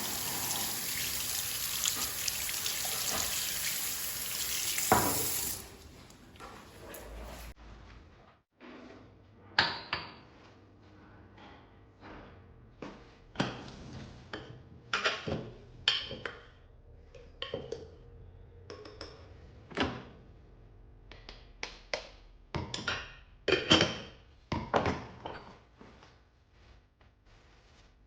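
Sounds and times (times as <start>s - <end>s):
kitchen items knocking and clinking: 4.5s - 5.7s.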